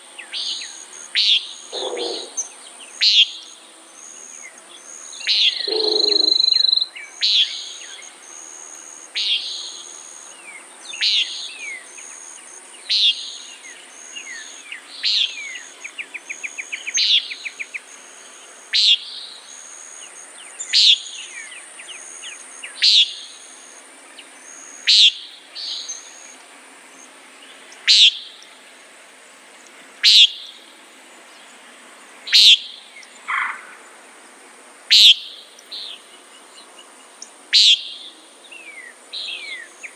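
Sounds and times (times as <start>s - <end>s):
insects droning: 0.0s - 39.9s
nighthawk nasal calls: 0.3s - 3.5s, 5.2s - 7.8s, 18.7s - 19.1s, 22.8s - 23.4s, 24.5s - 26.3s, 27.9s - 28.3s, 30.0s - 30.5s, 32.3s - 33.8s, 34.9s - 35.4s, 37.5s - 38.0s.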